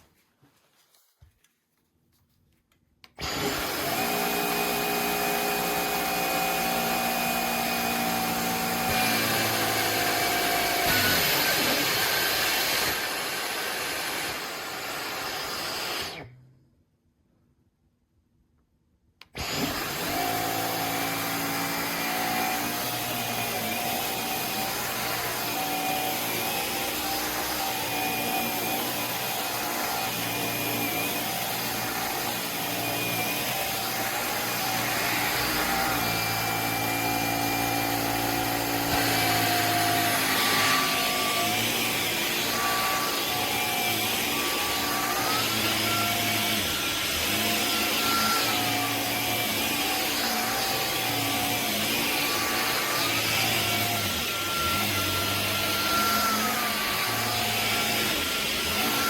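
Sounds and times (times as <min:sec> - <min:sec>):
cordless vacuum motor whine: 0:03.2 - 0:16.4, 0:19.3 - 0:59.0.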